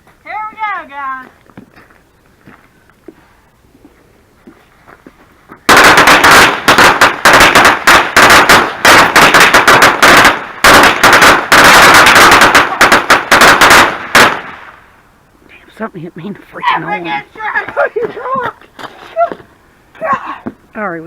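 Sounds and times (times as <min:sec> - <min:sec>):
firecrackers banging: 0:05.6 - 0:14.9.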